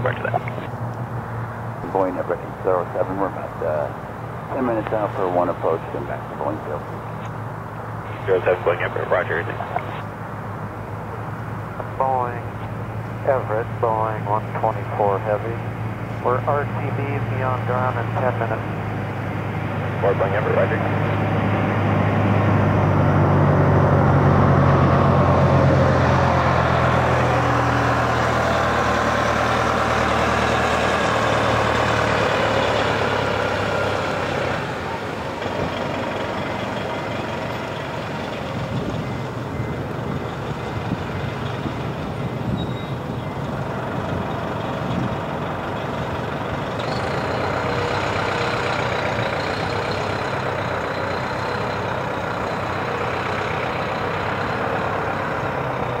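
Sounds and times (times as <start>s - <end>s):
low hum: 0.0s - 28.2s
heavy engine running: 0.0s - 56.0s.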